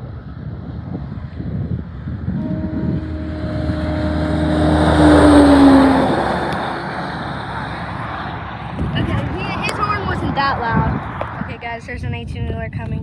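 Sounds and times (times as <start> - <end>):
truck horn note: 2.4 - 8.3
truck passing at speed: 2.4 - 11.5.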